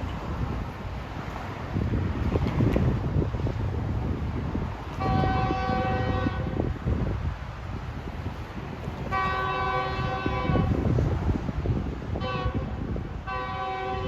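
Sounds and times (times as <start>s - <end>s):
steady low rumble: 0.0s - 11.9s
locomotive air horn blasts: 5.0s - 6.6s, 9.1s - 10.8s, 12.2s - 14.0s.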